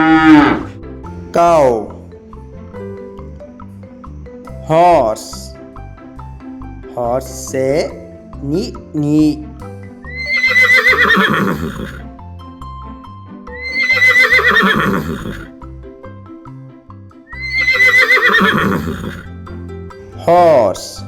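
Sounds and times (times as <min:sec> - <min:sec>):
horse whinnying: 0:00.0 - 0:00.8, 0:10.1 - 0:12.1, 0:13.5 - 0:15.5, 0:17.3 - 0:19.3
background music: 0:00.0 - 0:21.0.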